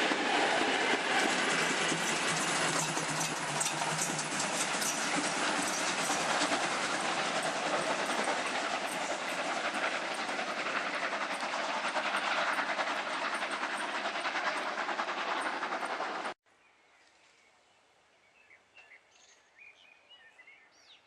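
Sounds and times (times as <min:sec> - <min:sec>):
train wheels clattering over rails: 0:00.0 - 0:16.4.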